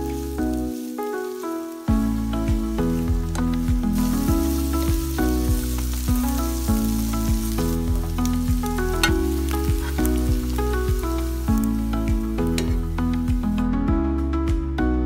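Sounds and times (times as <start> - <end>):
fish and onions sizzling in pan: 0.0 - 13.7
background music: 0.0 - 15.0
wooden spatula stirring: 3.2 - 11.7.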